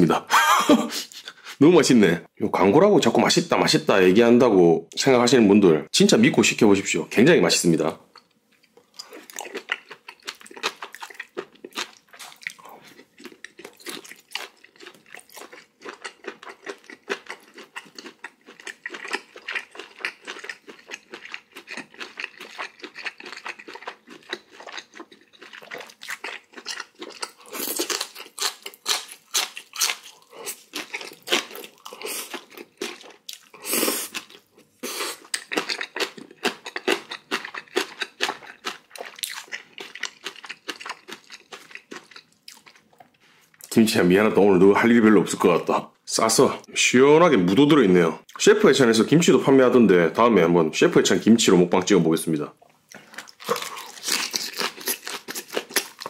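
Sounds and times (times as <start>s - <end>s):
person chewing with crisp crunches: 8.1s - 43.8s, 52.6s - 56.0s.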